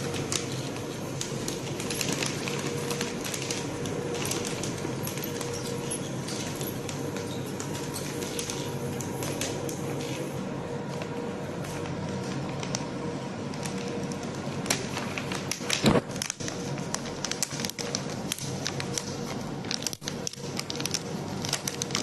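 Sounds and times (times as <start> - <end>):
sharp clicks and crackles: 0.0 - 9.9, 13.5 - 22.0
machine hum with faint tone: 0.0 - 22.0.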